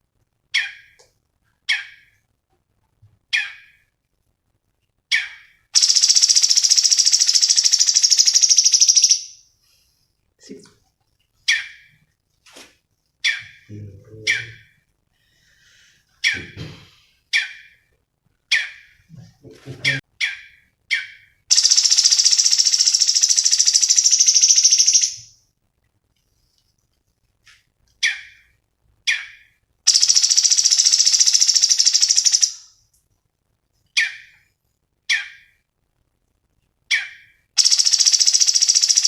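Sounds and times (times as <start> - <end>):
bird buzzy pulsing trill: 5.1 - 9.4, 21.0 - 25.3, 29.9 - 32.7, 37.0 - 39.0
bird sharp chirps: 5.1 - 9.4, 19.9 - 25.3, 29.1 - 32.7, 36.9 - 39.0.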